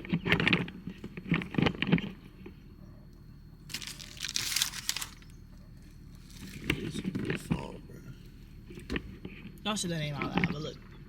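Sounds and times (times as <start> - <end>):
plastic packaging crinkling: 3.7 - 7.0
voices: 5.0 - 8.8.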